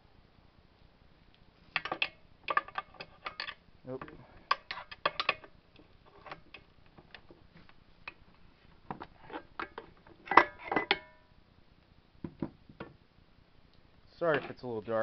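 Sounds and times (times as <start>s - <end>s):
metal parts clinking: 1.8s - 5.5s.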